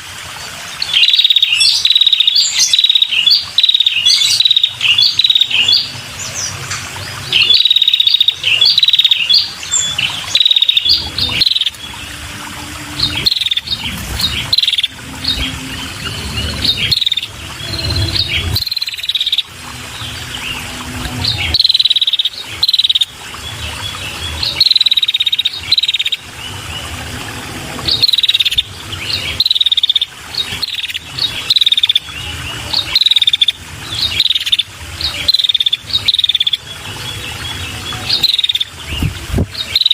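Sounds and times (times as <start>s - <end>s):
bird chirping calls: 0.8s - 27.0s, 27.8s - 39.9s.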